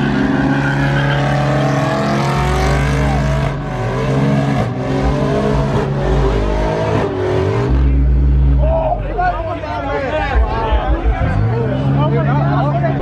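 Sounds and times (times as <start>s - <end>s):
truck engine revving: 0.0s - 9.2s.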